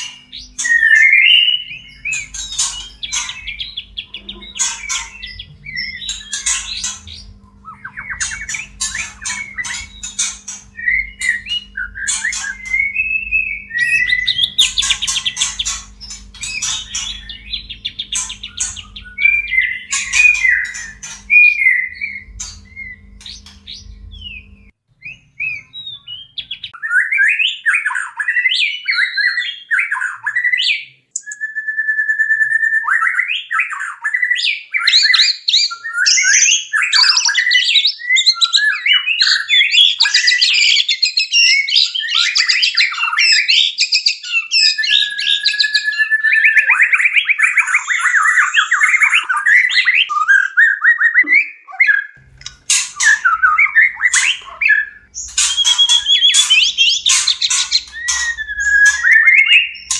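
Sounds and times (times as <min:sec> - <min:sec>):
bird rattling trill: 0:00.0 - 0:24.7, 0:52.2 - 0:59.9
songbird whistles and chirps: 0:00.0 - 0:59.9.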